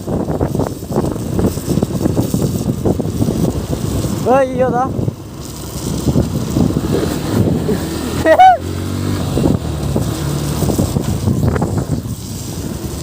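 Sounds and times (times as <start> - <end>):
motorcycle engine running: 0.0 - 13.0
road and wind noise: 0.0 - 13.0
brief rising and falling tone: 7.1 - 10.6.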